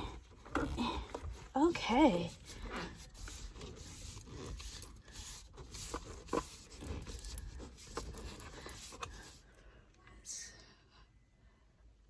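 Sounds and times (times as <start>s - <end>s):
rubbing and squeaking: 0.0s - 9.5s.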